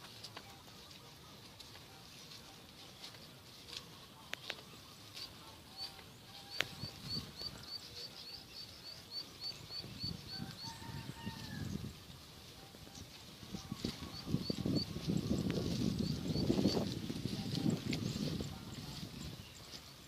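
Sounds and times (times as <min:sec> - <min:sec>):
small bird chirping: 0:04.6 - 0:10.8, 0:12.9 - 0:19.9.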